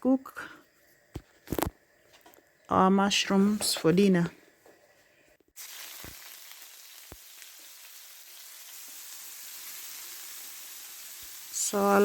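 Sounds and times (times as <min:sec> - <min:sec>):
mushrooms sizzling in oil: 0:05.6 - 0:12.0.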